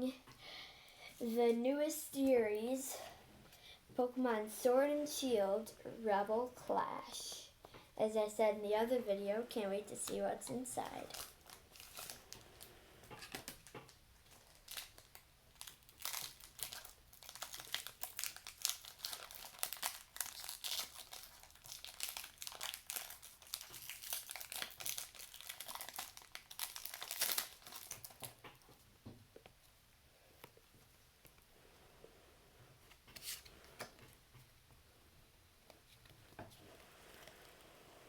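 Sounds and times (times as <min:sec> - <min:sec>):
foil wrapper crinkling and tearing: 0:10.8 - 0:28.7.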